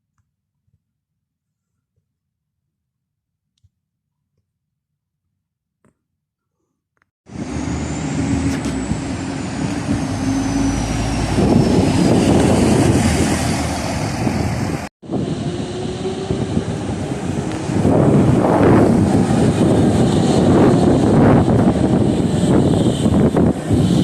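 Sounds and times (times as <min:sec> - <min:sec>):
vehicle running close by: 0:07.3 - 0:24.0.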